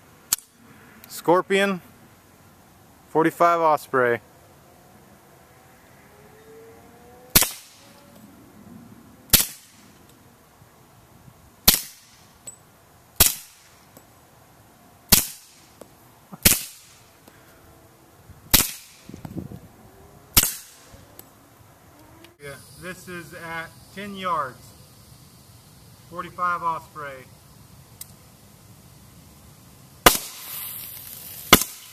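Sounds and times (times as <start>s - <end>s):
suppressed pistol shots: 7.3s - 7.8s, 9.3s - 9.8s, 11.6s - 12.2s, 13.2s - 13.7s, 15.1s - 15.6s, 16.4s - 16.9s, 18.5s - 19.1s, 20.3s - 20.9s, 30.0s - 30.6s.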